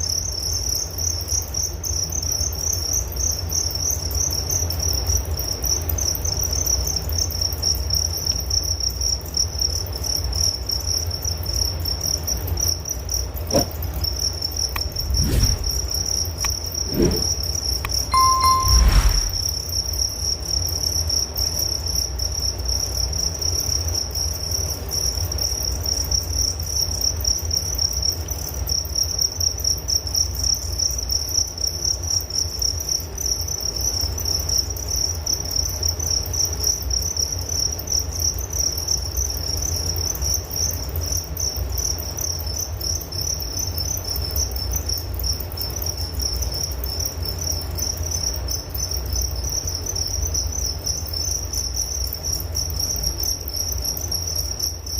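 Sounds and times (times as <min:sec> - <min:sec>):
crickets chirping: 0:00.0 - 0:54.9
low rumble: 0:14.8 - 0:16.0, 0:18.2 - 0:19.5.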